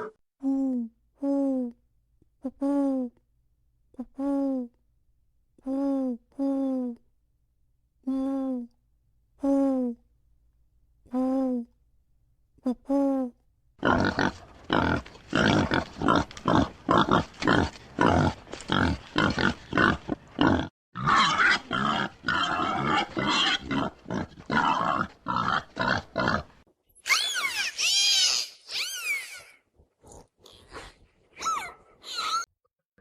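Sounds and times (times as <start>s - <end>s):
pig grunting: 13.8s - 26.6s
pig squealing: 13.8s - 29.6s, 31.4s - 32.5s.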